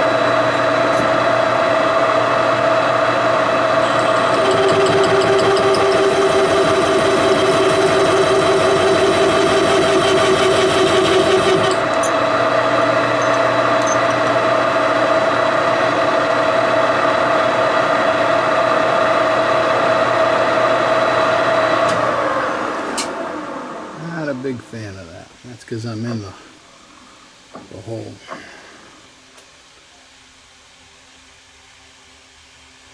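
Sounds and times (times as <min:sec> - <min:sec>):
metal lathe running: 0:00.0 - 0:23.9
lathe cutting whine: 0:00.0 - 0:24.2.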